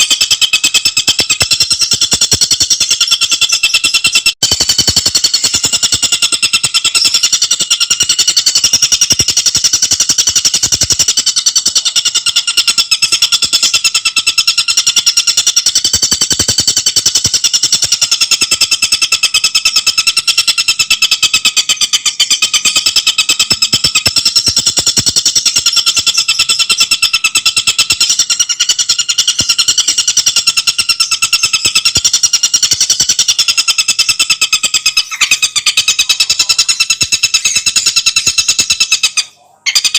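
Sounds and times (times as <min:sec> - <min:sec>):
bird rattling trill: 0:00.0 - 0:39.9.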